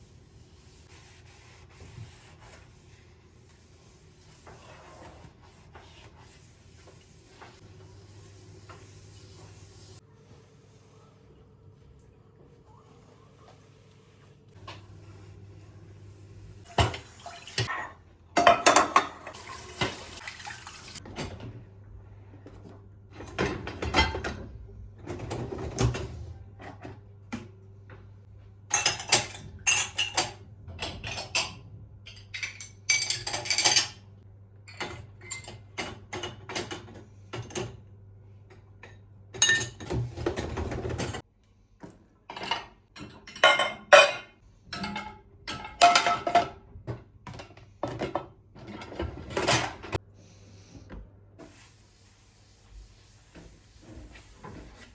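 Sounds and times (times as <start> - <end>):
dishes and utensils clinking: 16.7 - 20.2, 28.7 - 34.0, 34.7 - 37.7, 38.5 - 41.0, 42.3 - 46.6
running water: 19.3 - 21.0.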